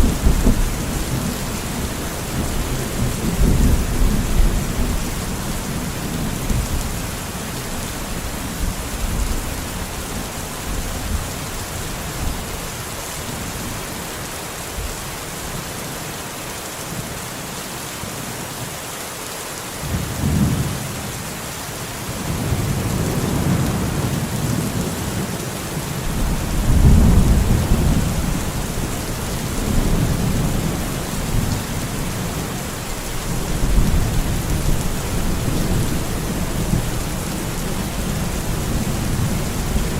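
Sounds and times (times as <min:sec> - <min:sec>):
rolling thunder: 0:00.0 - 0:07.0, 0:22.1 - 0:32.4
steady rain: 0:00.0 - 0:39.9.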